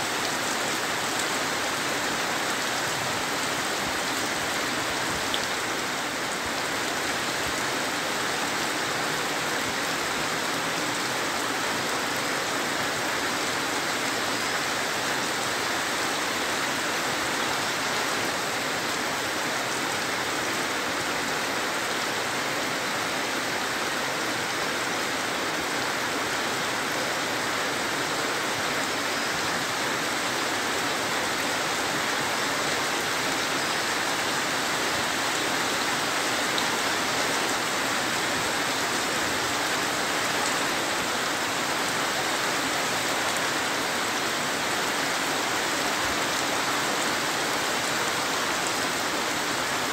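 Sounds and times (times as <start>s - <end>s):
heavy rain on wet ground: 0.0s - 49.9s.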